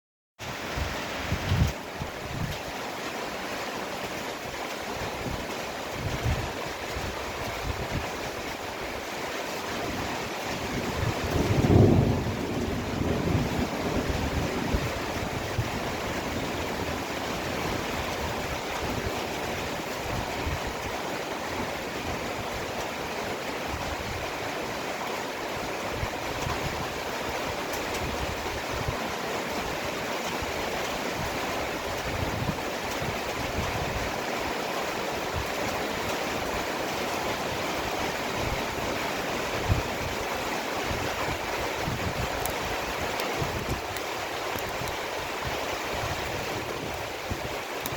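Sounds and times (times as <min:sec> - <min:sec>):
heavy rain pouring: 0:00.4 - 0:47.9
low rumble of wind: 0:00.4 - 0:47.9.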